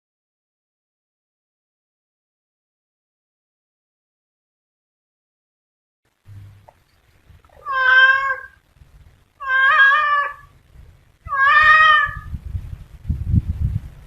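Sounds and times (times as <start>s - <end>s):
low rumbling noise: 6.1s - 14.0s
cat meowing: 7.5s - 8.6s, 9.4s - 10.5s, 11.2s - 12.3s.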